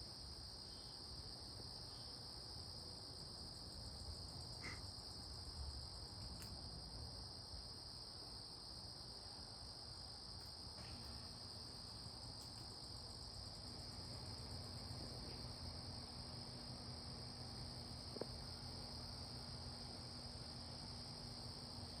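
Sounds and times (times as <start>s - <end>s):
faint low hum: 0.2s - 22.0s
insects trilling: 3.5s - 22.0s
small click: 6.4s - 6.6s.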